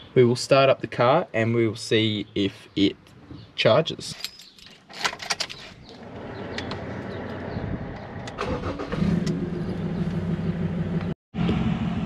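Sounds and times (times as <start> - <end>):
keys jangling: 4.1 - 5.7
car engine starting and idling: 5.9 - 12.0.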